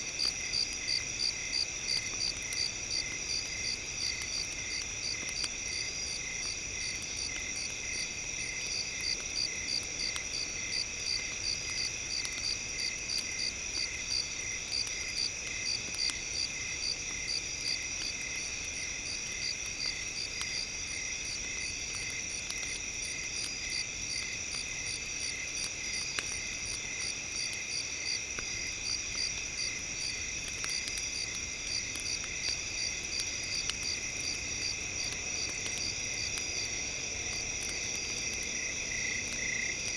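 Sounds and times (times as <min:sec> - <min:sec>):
faint scattered ticks: 0:00.0 - 0:39.9
crickets chirping: 0:00.1 - 0:39.9.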